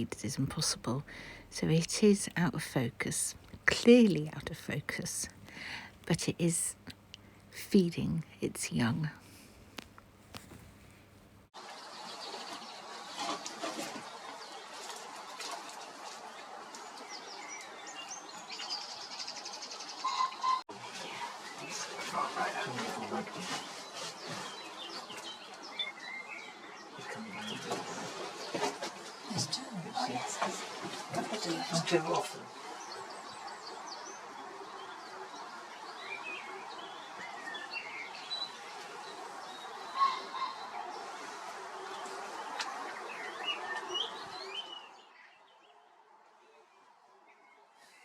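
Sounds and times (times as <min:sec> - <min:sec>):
steady outdoor hiss: 0:00.0 - 0:20.1, 0:20.7 - 0:48.0
songbirds singing and chirping: 0:16.8 - 0:45.8.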